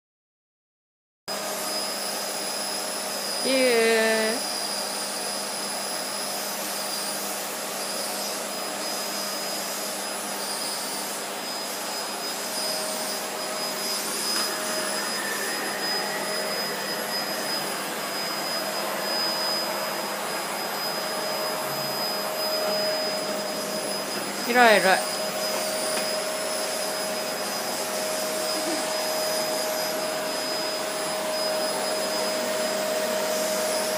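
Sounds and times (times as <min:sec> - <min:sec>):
vacuum cleaner running: 0:01.3 - 0:33.9
short voice: 0:03.4 - 0:04.4.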